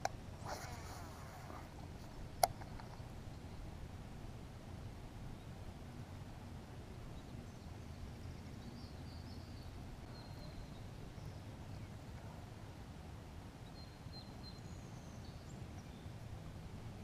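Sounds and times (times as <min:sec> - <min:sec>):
low steady rumble: 0:00.0 - 0:17.0
faint bird chirps: 0:07.2 - 0:12.4, 0:13.6 - 0:16.2.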